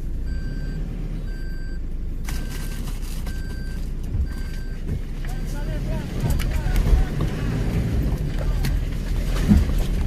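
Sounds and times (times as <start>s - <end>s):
vehicle engine running: 0.0s - 10.0s
electronic warning beeps: 0.2s - 5.7s.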